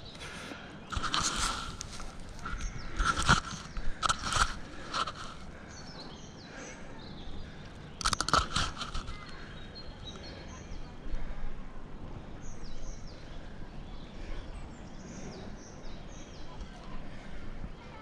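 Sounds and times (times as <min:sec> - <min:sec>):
sharp crackling and scraping: 0:00.0 - 0:11.6.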